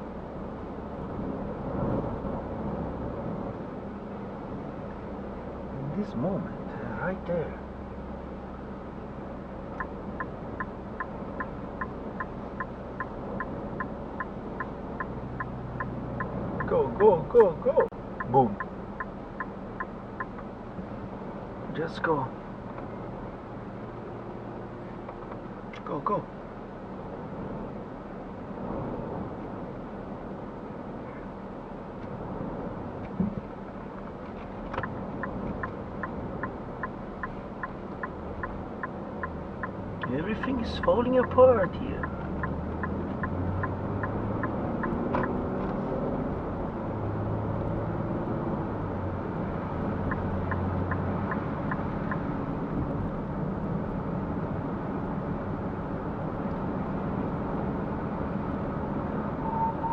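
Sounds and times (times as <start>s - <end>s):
car cabin hum: 0.0s - 46.9s
turn signal clicking: 9.7s - 20.5s, 34.2s - 45.8s, 49.9s - 52.3s.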